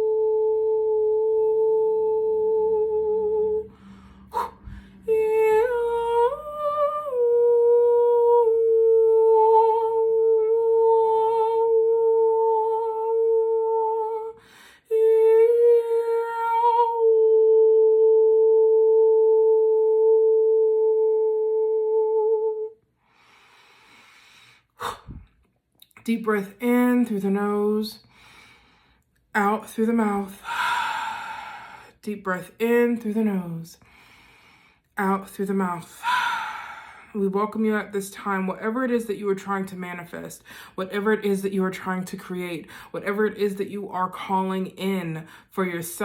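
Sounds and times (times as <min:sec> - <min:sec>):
woman humming a steady note: 0:00.0 - 0:22.7
woman breathing in: 0:03.6 - 0:05.1, 0:14.4 - 0:14.9, 0:23.0 - 0:25.4, 0:28.0 - 0:29.1, 0:30.4 - 0:32.0, 0:33.8 - 0:35.0, 0:36.0 - 0:37.2, 0:40.4 - 0:40.8, 0:42.7 - 0:42.9.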